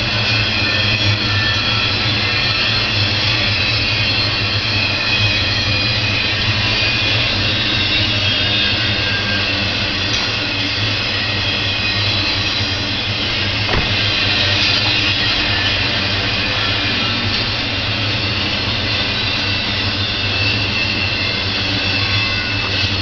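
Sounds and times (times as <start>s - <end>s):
steel wheels rumbling on rails: 0.0s - 23.0s.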